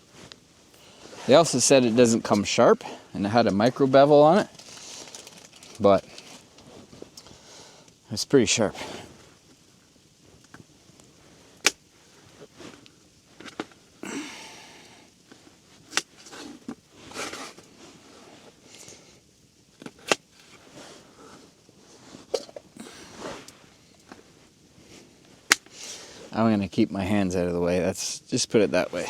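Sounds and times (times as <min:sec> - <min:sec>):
rustling scrapes: 0:00.0 - 0:07.1, 0:16.1 - 0:18.6, 0:20.4 - 0:25.2.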